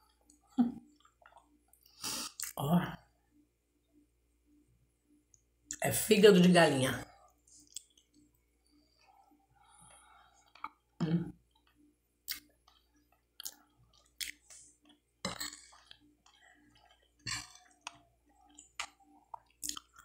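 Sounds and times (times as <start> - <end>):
person chewing food: 0.2 - 2.6, 7.3 - 20.0
wet mouth noises: 0.8 - 2.6, 10.5 - 12.8, 13.4 - 20.0.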